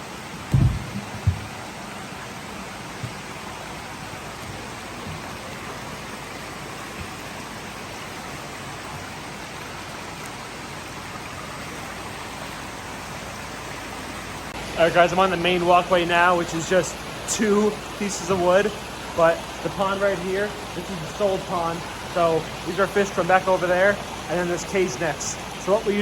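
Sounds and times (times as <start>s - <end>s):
running and splashing water: 0.0s - 26.0s
faint knock: 0.5s - 1.6s.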